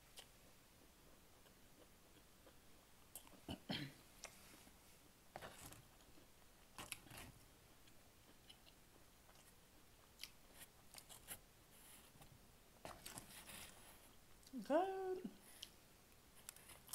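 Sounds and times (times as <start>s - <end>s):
crunchy chewing of pizza crust: 0.1s - 3.6s, 4.2s - 14.6s, 15.4s - 16.9s
food handled on cardboard box: 10.6s - 14.1s.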